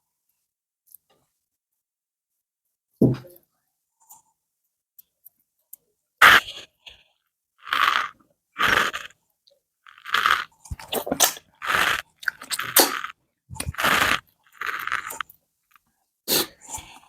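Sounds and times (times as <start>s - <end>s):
chewing and mouth noises: 7.6s - 9.1s, 9.9s - 15.4s.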